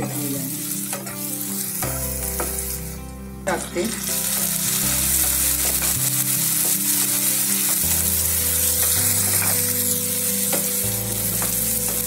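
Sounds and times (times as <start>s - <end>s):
vegetables sizzling in oil: 0.0s - 12.0s
spatula scraping a pan: 4.0s - 12.0s.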